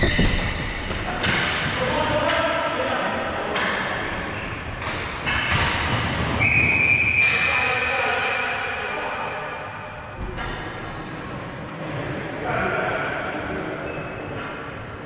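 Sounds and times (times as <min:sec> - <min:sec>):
echoing knocks and thuds: 0:00.0 - 0:02.7
voices: 0:00.0 - 0:04.4
high whistle-like tone: 0:06.4 - 0:07.6.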